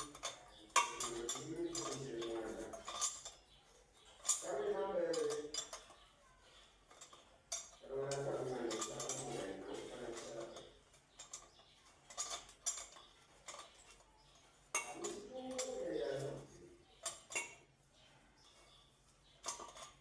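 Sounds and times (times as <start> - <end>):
low talk: 0.0 - 3.3, 4.2 - 6.6, 7.5 - 11.3, 14.8 - 17.7
hard objects clinking: 0.0 - 20.0.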